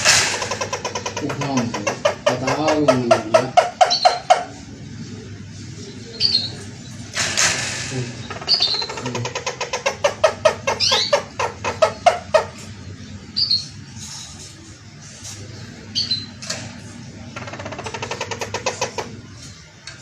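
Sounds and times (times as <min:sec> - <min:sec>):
bird chirps: 0:03.7 - 0:04.4, 0:05.9 - 0:07.0, 0:08.2 - 0:12.4, 0:15.9 - 0:16.4.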